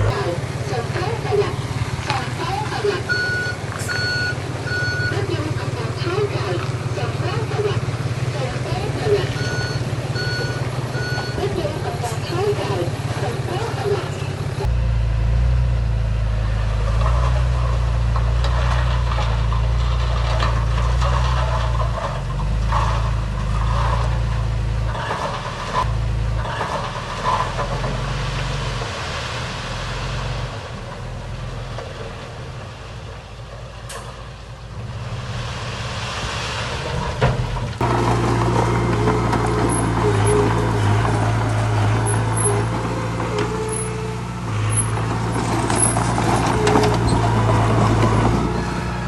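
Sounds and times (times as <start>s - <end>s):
heavy diesel machinery running: 0.0s - 49.0s.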